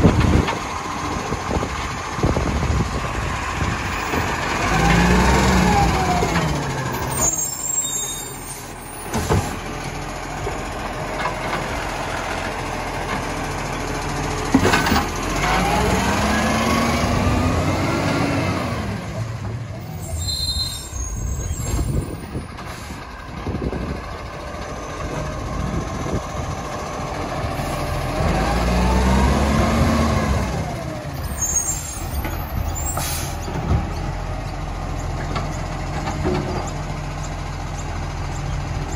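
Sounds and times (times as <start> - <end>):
diesel engine revving: 0.0 - 38.9
air brake hisses: 32.8 - 33.4.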